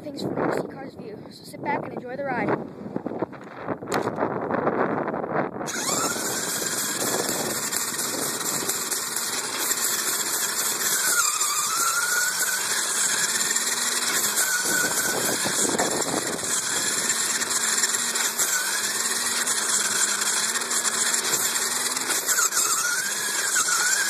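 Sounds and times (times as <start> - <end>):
rc car motor whine: 5.6 - 24.0.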